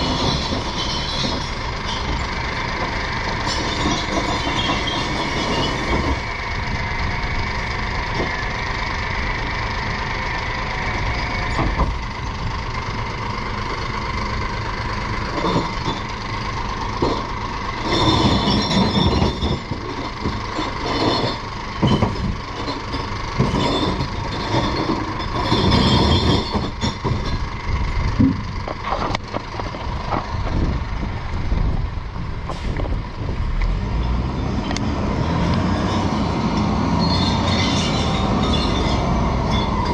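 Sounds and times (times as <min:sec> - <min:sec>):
truck engine whine: 0:00.0 - 0:39.9
glass clattering and crashing: 0:17.9 - 0:19.8, 0:20.6 - 0:27.4.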